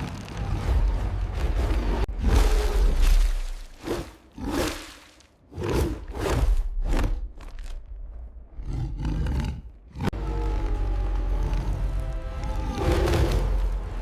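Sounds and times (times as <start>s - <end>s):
wild animals roaring and growling: 8.5s - 14.0s.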